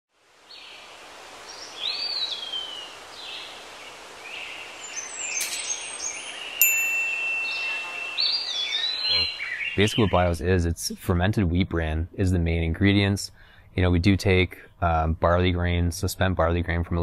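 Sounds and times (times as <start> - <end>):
outdoor background hiss: 0.1 - 17.0
birds chirping and calling: 4.3 - 10.5
long steady whistle: 6.6 - 8.8.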